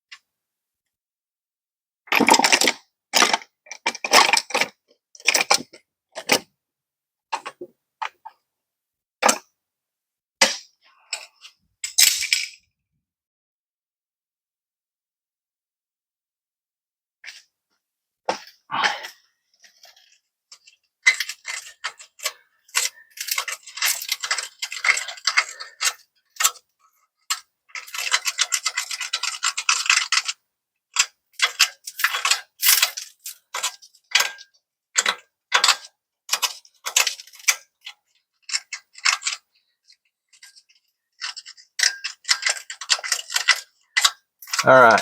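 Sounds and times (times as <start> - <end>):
hand tools clicking on metal: 21.1 - 26.6, 31.0 - 34.4, 41.2 - 45.0.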